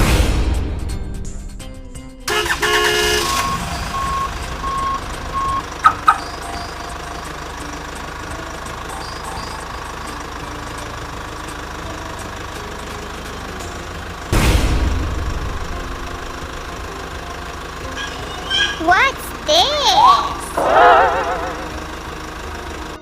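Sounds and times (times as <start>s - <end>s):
vehicle engine running: 2.2s - 23.0s
reversing beeps: 3.2s - 6.8s.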